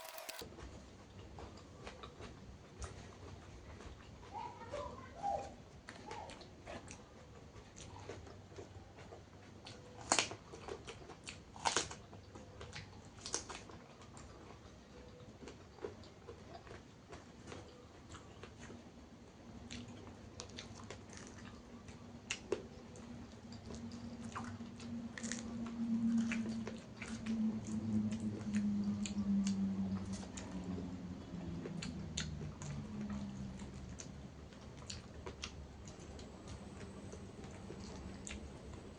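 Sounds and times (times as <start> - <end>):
crunchy chewing: 0.0 - 0.5, 5.3 - 38.9
low droning hum: 22.6 - 38.9.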